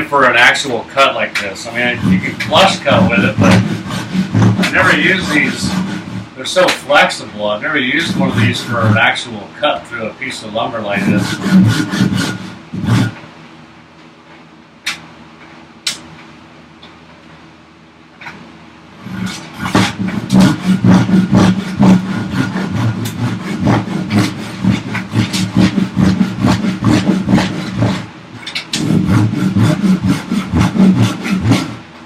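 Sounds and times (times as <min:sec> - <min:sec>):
hand saw cutting wood: 0:01.4 - 0:09.3, 0:10.8 - 0:13.2, 0:19.0 - 0:31.9.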